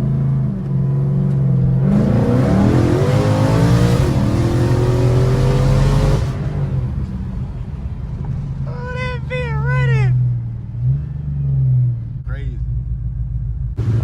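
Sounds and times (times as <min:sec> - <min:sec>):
supercharged car engine accelerating: 0:00.0 - 0:07.1.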